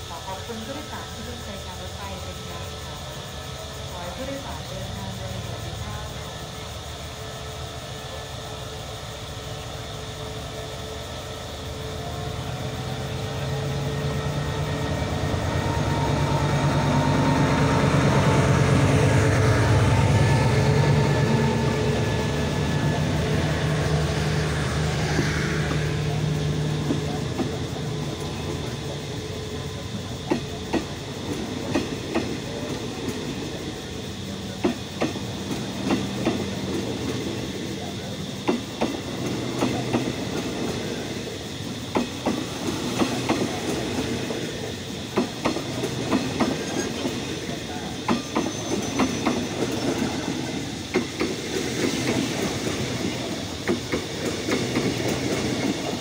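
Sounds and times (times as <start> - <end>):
locomotive engine drone: 0.0 - 56.0
wheels clacking over rail joints: 13.6 - 41.0, 41.7 - 56.0.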